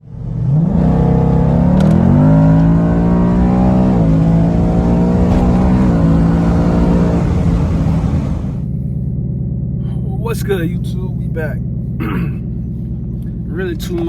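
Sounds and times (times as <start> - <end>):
car engine starting and revving: 0.1 - 8.9.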